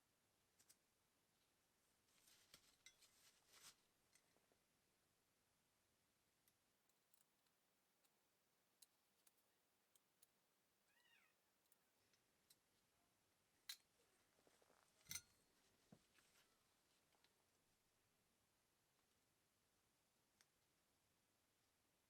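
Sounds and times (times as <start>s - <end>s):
faint cat meow: 10.9s - 11.4s.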